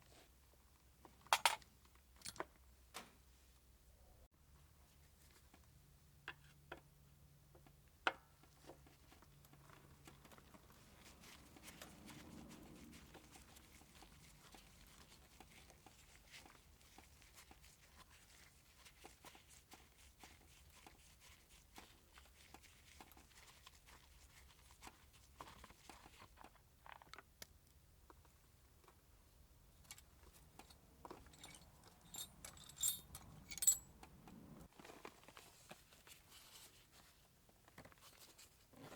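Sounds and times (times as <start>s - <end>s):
metallic clinks of tools: 30.6s - 33.9s.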